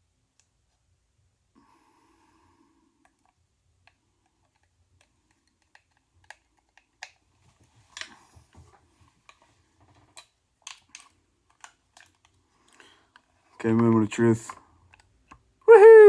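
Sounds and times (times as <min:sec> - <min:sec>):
small metal parts clicking: 0:10.1 - 0:14.0.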